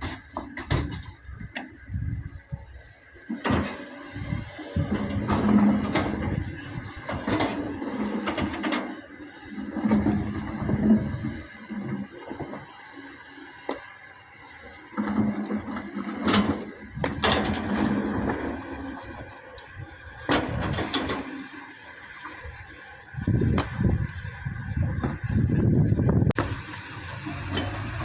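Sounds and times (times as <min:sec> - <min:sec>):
diesel engine running: 0:22.5 - 0:28.0.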